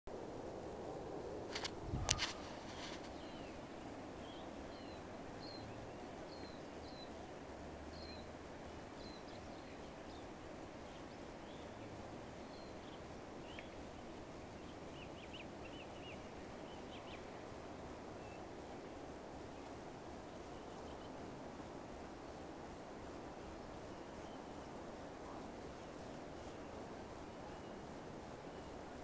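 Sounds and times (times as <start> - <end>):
low outdoor hiss: 0.1 - 29.0
small birds chirping: 1.5 - 18.6.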